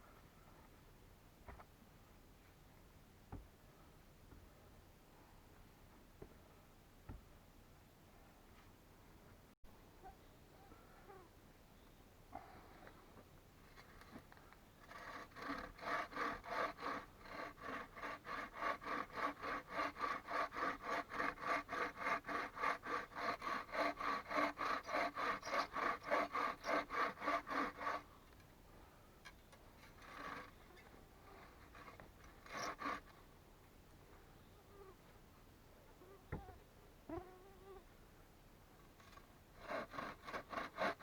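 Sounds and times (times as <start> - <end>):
hand saw cutting wood: 14.8 - 28.4, 29.8 - 33.2, 39.0 - 41.0.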